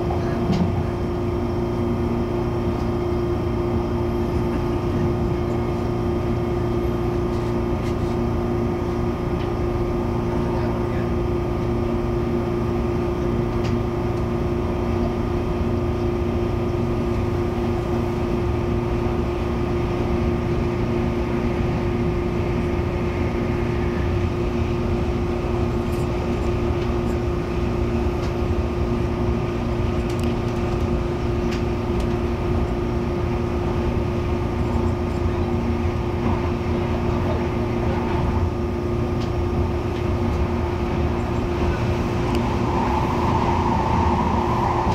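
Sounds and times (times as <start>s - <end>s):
train carriage hum and rumble: 0.0s - 44.9s.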